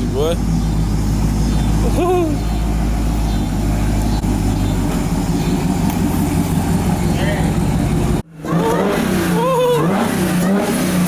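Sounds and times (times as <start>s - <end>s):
car engine idling: 0.0s - 11.0s
whoop-like voice: 9.3s - 10.0s.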